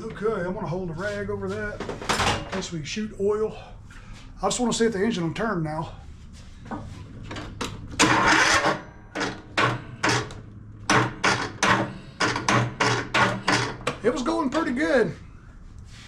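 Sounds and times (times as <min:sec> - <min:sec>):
electric starter cranking engine: 0:07.9 - 0:14.0.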